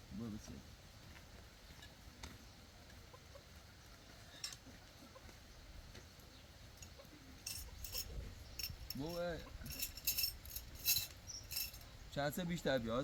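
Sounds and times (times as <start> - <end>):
bright clinks: 6.8 - 11.9.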